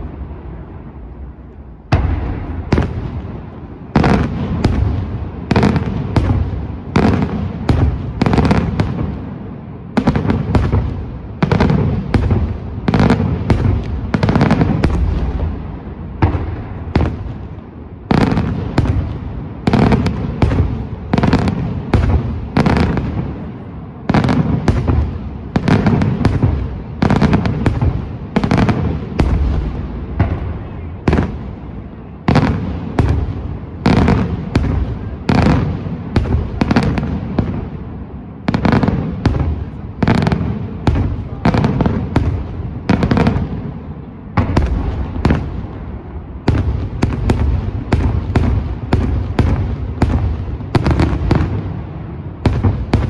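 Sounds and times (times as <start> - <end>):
fireworks bangs: 0.0 - 53.0.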